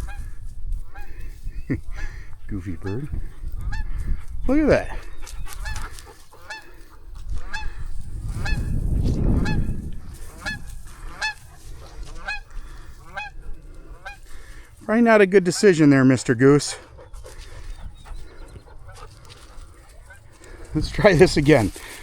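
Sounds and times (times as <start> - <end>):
goose honking: 1.9 - 3.9, 5.6 - 8.7, 9.4 - 14.7, 15.4 - 22.0.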